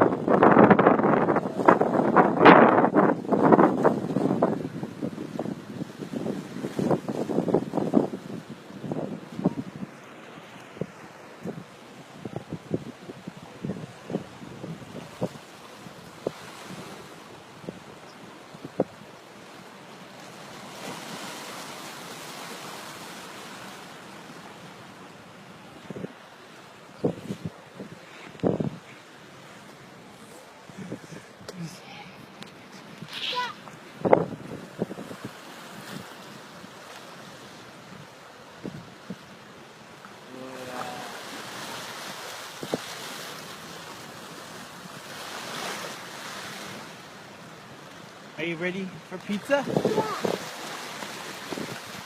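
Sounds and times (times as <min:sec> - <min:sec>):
wind on microphone: 0:00.0 - 0:10.0, 0:10.6 - 0:19.1, 0:25.6 - 0:26.2, 0:27.0 - 0:29.0, 0:30.0 - 0:36.2, 0:37.8 - 0:39.3, 0:40.3 - 0:43.8, 0:49.3 - 0:52.0
river rushing: 0:00.0 - 0:52.0.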